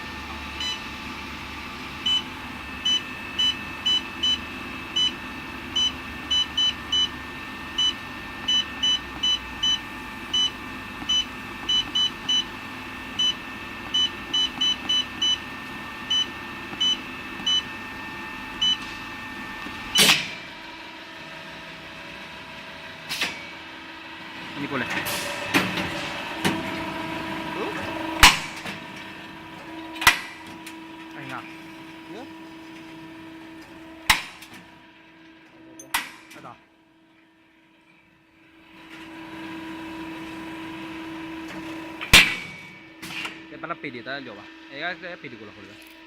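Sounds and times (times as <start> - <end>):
machine hum: 0.0 - 46.0
control panel beeps: 0.6 - 0.8, 2.0 - 4.4, 5.0 - 5.2, 5.8 - 7.2, 7.8 - 12.5, 13.2 - 15.4, 16.1 - 17.7, 18.6 - 18.8.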